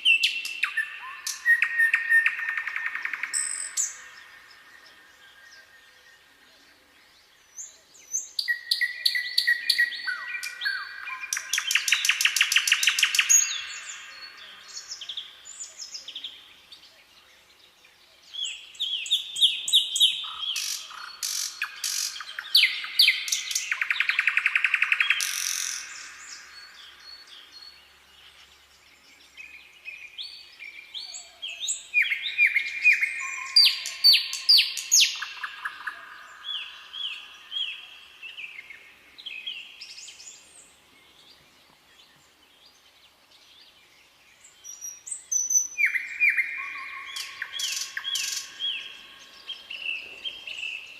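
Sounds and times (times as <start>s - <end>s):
songbirds singing: 0.0s - 50.9s.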